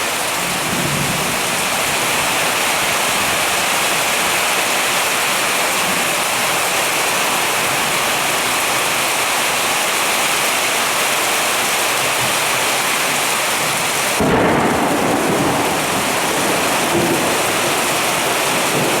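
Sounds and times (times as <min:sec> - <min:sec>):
heavy rain pouring: 0:00.0 - 0:19.0
deep rumble of thunder: 0:14.2 - 0:19.0.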